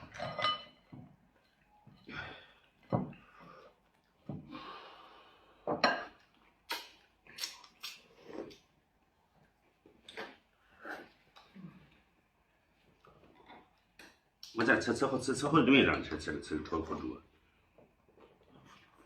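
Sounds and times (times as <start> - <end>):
tableware clinking: 0.0 - 1.0, 5.7 - 6.2.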